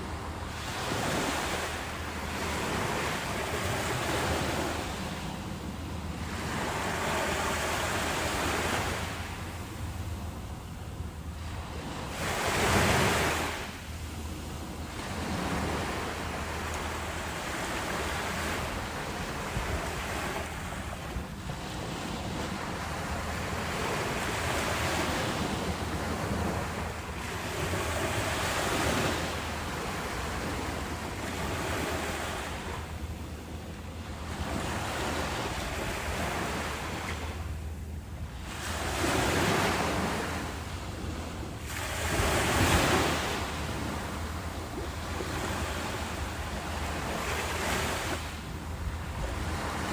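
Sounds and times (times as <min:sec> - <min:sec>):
ocean waves breaking: 0:00.0 - 0:49.9.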